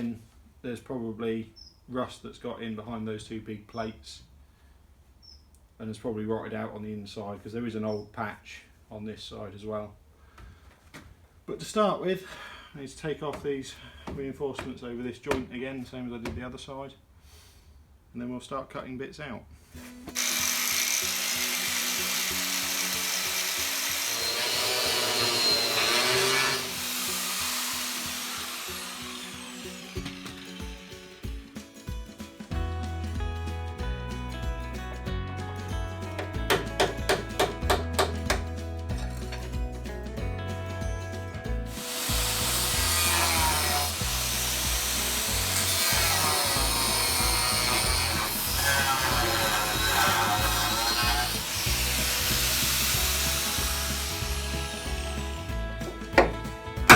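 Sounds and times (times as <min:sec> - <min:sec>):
angle grinder on steel: 0:20.1 - 0:31.8, 0:41.7 - 0:56.9
background music with steady beat: 0:27.4 - 0:56.9.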